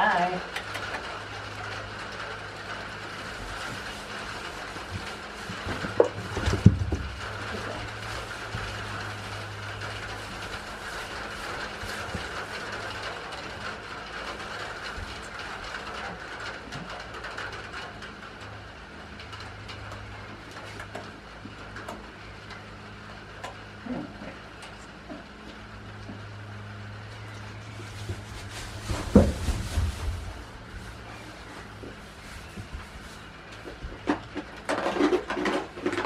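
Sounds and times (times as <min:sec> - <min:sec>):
rain pattering and dripping: 0:00.0 - 0:28.1.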